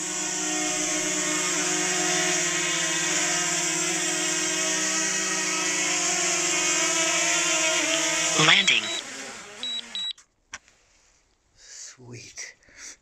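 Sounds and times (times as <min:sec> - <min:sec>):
drone propellers whining: 0:00.0 - 0:10.1.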